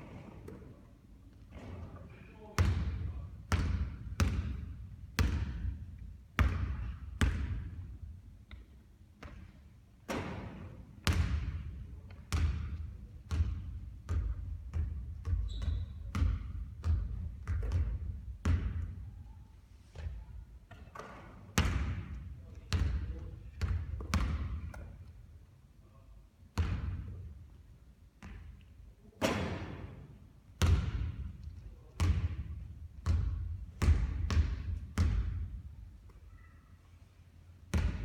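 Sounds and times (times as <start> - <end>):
basketball bouncing on court: 2.6 - 5.8, 6.4 - 7.9, 9.2 - 19.2, 20.0 - 25.0, 26.6 - 27.2, 28.2 - 28.5, 30.6 - 31.3, 32.0 - 35.7, 37.7 - 38.0.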